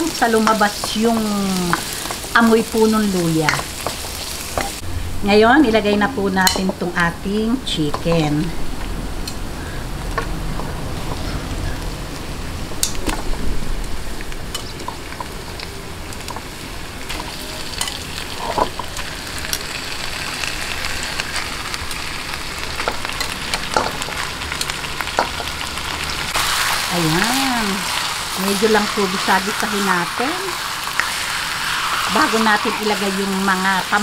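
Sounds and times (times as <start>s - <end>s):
chicken sizzling in hot oil: 0.0s - 4.8s, 13.9s - 34.0s.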